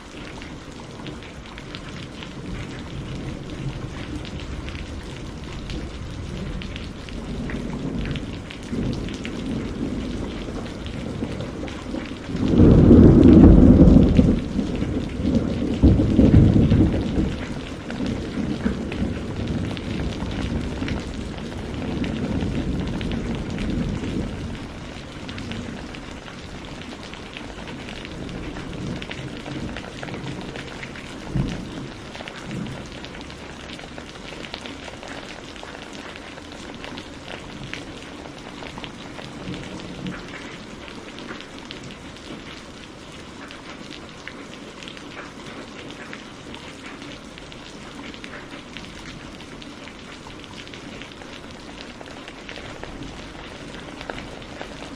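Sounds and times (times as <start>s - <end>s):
steady rain: 0.0s - 54.9s
thunder rumbling: 1.1s - 35.2s.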